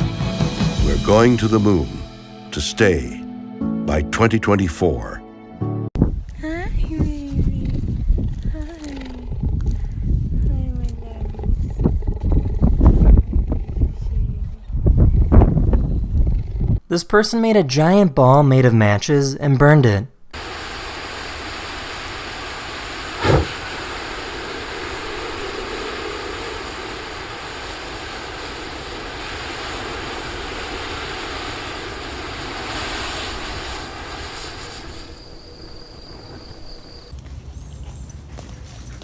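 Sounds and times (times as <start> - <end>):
matches burning with rushing hiss: 20.4 - 37.1
sharp crack: 23.1 - 24.2.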